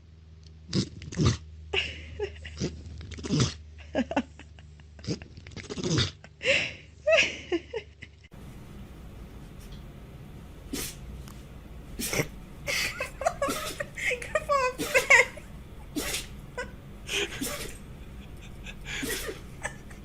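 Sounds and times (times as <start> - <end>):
dog sneezing: 10.7 - 11.0, 12.0 - 12.4, 13.4 - 14.0, 14.8 - 15.3, 15.9 - 16.4, 17.2 - 17.9, 18.9 - 19.5.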